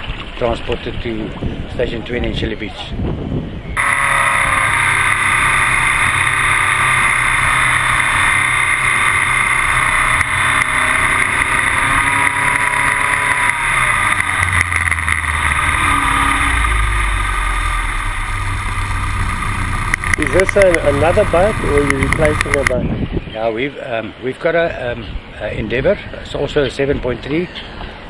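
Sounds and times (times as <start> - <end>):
outboard motors running: 3.8 - 23.0
rush of noise: 3.8 - 23.0.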